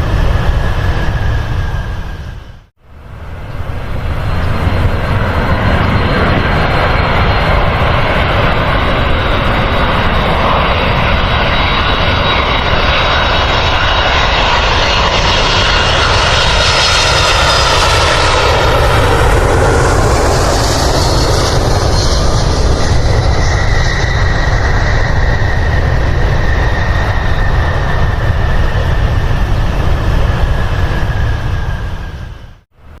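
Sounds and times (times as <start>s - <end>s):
airliner engines running: 0.0s - 33.0s.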